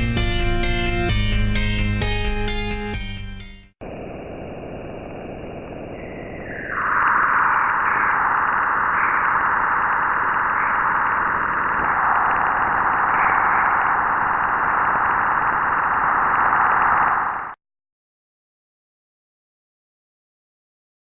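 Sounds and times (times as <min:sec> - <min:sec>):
steady hissing rush: 0:03.8 - 0:17.6.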